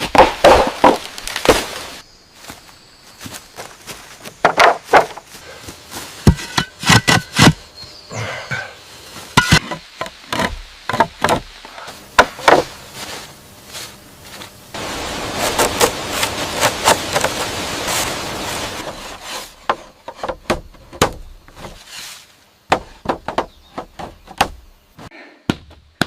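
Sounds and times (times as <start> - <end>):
bamboo being chopped: 0.0 - 2.0, 4.4 - 5.3, 6.2 - 7.6, 9.3 - 12.8, 15.4 - 18.0, 18.8 - 21.8, 22.7 - 26.0
rustling: 11.5 - 20.3, 21.4 - 23.0.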